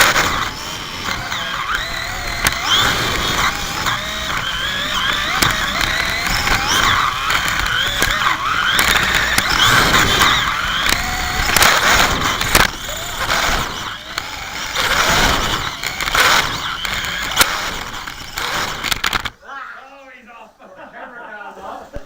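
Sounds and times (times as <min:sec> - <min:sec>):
cars clicking and rattling: 0:00.0 - 0:19.4
slot car motors whining: 0:00.0 - 0:19.4.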